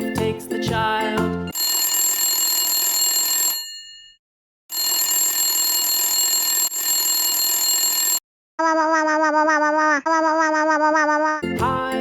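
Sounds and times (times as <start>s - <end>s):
instrumental children's tune: 0.0s - 1.6s, 11.4s - 12.0s
alarm bell ringing: 1.5s - 8.2s.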